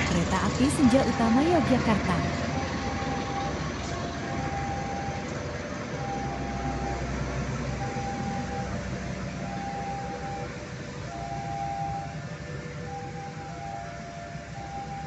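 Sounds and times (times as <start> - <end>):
train wheel noise: 0.0 - 6.4
level crossing warning alarm: 0.0 - 15.0
locomotive engine rumble: 0.0 - 15.0.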